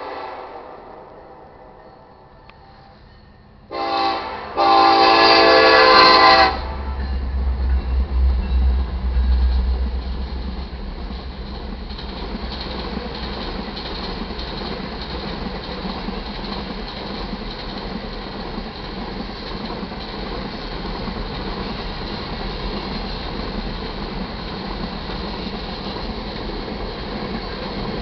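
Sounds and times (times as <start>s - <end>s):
locomotive horn blasts: 0.0s - 1.1s, 3.7s - 7.1s
diesel locomotives rumbling: 0.0s - 28.0s
ore cars rolling and clattering: 7.0s - 28.0s.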